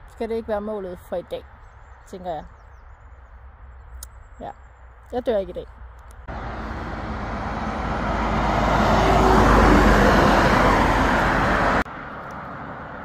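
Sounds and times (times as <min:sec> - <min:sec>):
deep traffic rumble: 0:00.0 - 0:13.0
vehicle passing close: 0:06.3 - 0:13.0.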